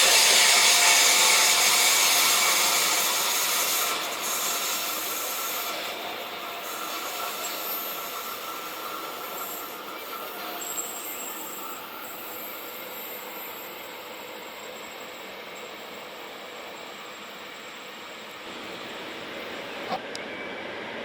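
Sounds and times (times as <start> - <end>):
train rolling on rails: 0.0 - 21.0
wheels squealing on rails: 0.0 - 21.0.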